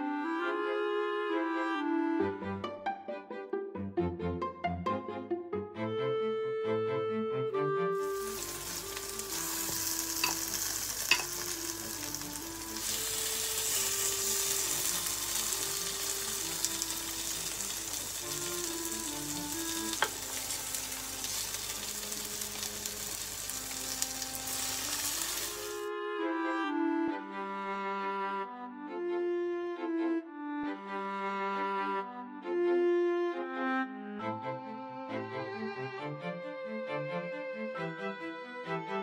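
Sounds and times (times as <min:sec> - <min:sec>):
soft background music: 0:00.0 - 0:39.0
butter sizzling in a frying pan: 0:08.0 - 0:25.9.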